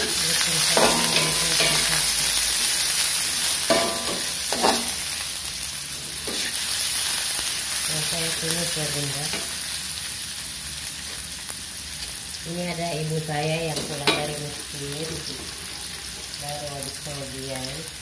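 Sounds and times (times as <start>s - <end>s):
spatula scraping and knocking pan: 0.0s - 2.2s, 3.6s - 5.0s, 6.0s - 6.6s
food sizzling in hot oil: 0.0s - 18.0s.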